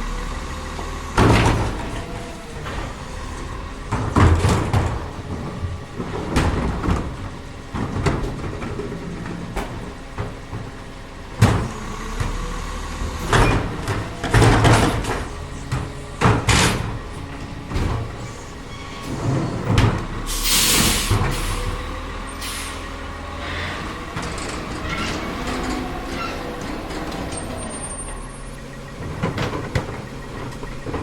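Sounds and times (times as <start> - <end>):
garbage truck running: 0.0 - 31.0
trash banging into hopper: 0.8 - 31.0
air hiss burst: 20.3 - 21.6.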